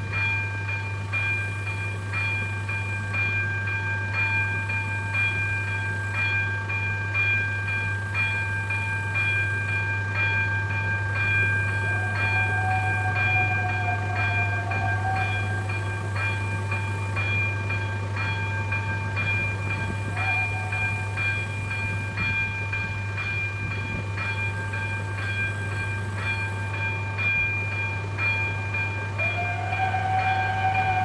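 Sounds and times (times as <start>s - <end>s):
train low drone: 0.0s - 31.0s.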